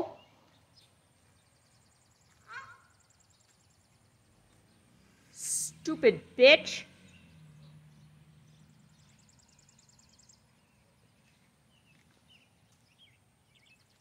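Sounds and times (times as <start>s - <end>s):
faint high bird chirps: 0.0s - 4.8s.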